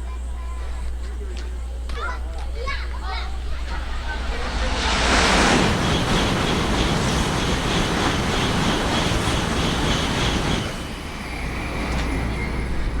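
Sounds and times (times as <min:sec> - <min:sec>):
train rushing past: 0:02.7 - 0:13.0.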